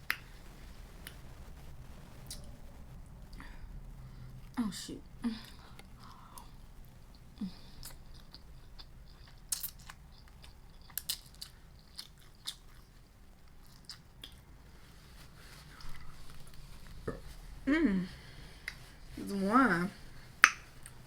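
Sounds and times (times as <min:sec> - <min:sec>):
person chewing crunchy food: 0:05.8 - 0:14.5.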